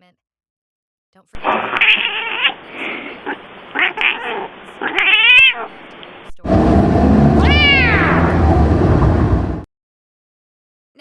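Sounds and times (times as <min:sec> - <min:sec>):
cat meowing: 0:01.4 - 0:06.0, 0:07.3 - 0:08.5
low steady hum: 0:01.4 - 0:09.6.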